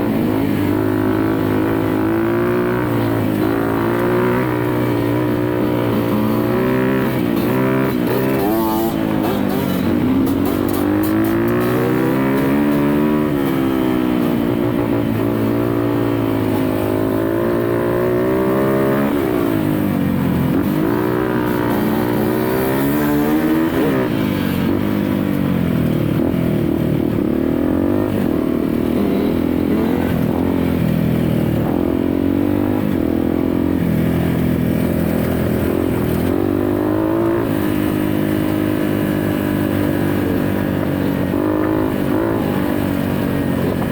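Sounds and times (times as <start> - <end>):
dirt bike engine revving: 0.4 - 14.1, 20.5 - 24.2.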